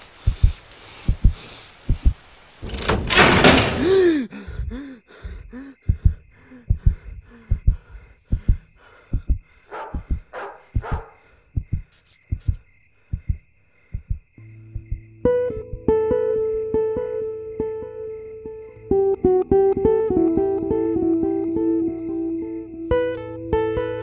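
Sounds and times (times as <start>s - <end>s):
heartbeat thuds: 0.2s - 2.2s, 4.5s - 16.1s.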